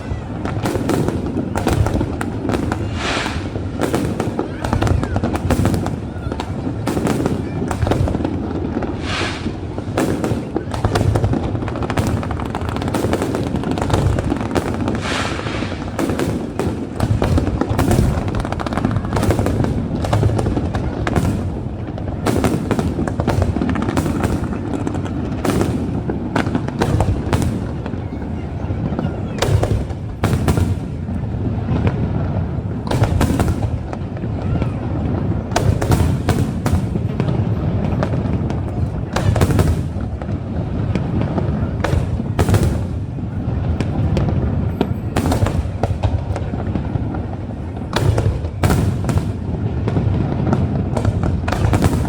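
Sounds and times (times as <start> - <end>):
firework shells bursting: 0.5 - 6.0, 6.8 - 21.3.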